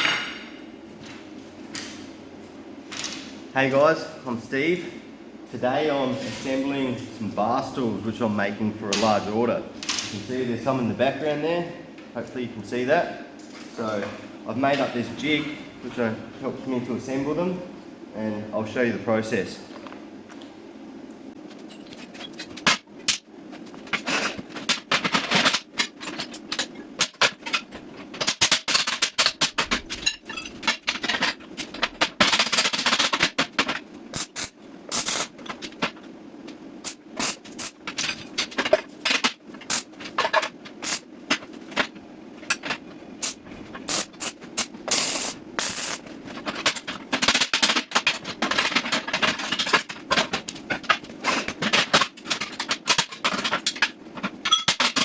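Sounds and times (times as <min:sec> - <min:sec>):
steady low hum: 0:00.0 - 0:55.0
welder arc crackling: 0:34.1 - 0:35.4, 0:36.8 - 0:37.8, 0:39.6 - 0:39.9, 0:40.8 - 0:41.0, 0:43.2 - 0:46.1.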